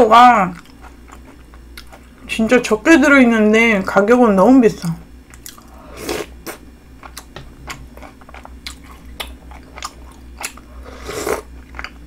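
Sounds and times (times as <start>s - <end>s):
chewing and crunching snacks: 0.5s - 2.3s, 5.3s - 12.0s.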